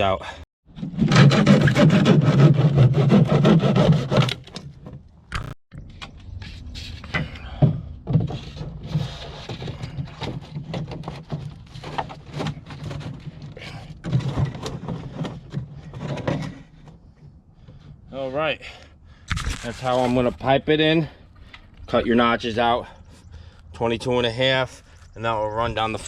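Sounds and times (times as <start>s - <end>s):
scraping and rubbing: 0.7s - 5.6s, 8.0s - 18.6s, 19.2s - 20.6s.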